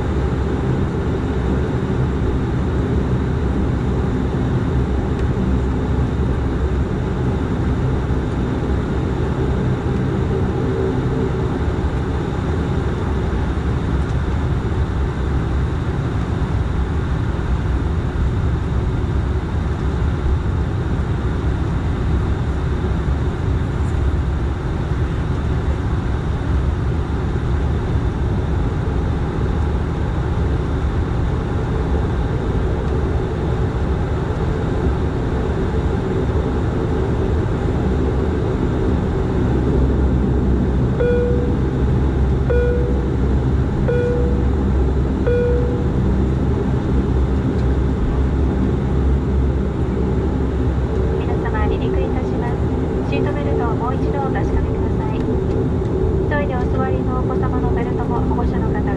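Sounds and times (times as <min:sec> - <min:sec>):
turboprop cabin drone: 0:00.0 - 0:58.9
short beeps: 0:41.0 - 0:41.7, 0:42.5 - 0:43.1, 0:43.8 - 0:44.5, 0:45.3 - 0:46.0.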